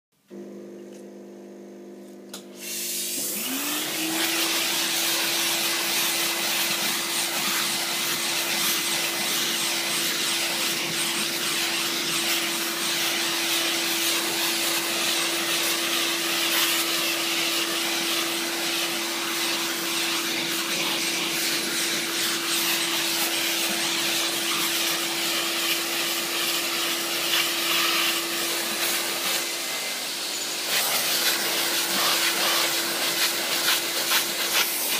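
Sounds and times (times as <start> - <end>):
car-cleaning machine whine: 0.2 - 34.9
loud even hiss: 2.5 - 3.5.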